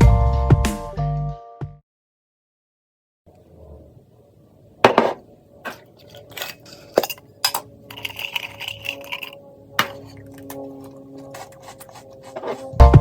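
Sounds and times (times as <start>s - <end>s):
small hard objects clinking: 6.0s - 12.7s.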